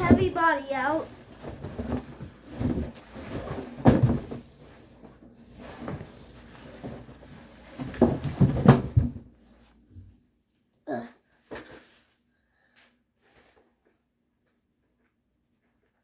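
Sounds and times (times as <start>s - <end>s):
cardboard rustling: 0.0s - 9.2s.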